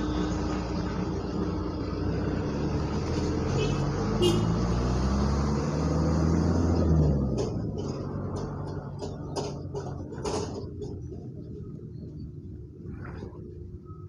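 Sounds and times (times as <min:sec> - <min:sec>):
vehicle engine passing by: 0:00.0 - 0:09.1.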